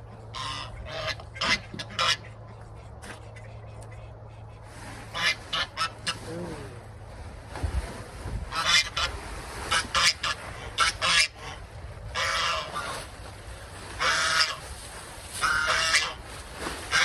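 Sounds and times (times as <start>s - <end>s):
geese honking: 0.2s - 6.3s, 8.5s - 13.2s, 13.9s - 14.8s, 15.4s - 17.0s.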